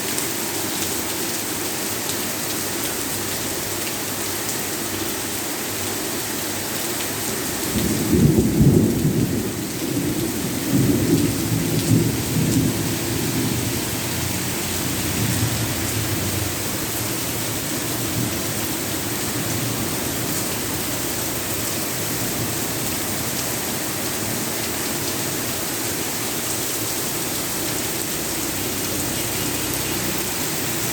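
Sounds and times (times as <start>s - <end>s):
steady rain hissing: 0.0s - 30.9s
thunder rumbling: 7.8s - 16.9s.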